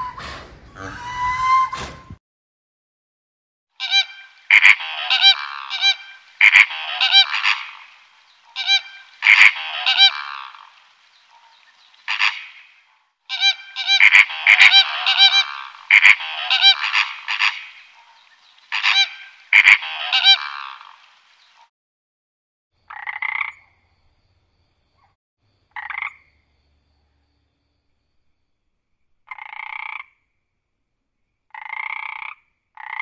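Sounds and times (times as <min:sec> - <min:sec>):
harsh loud bird calls: 0:03.8 - 0:21.6.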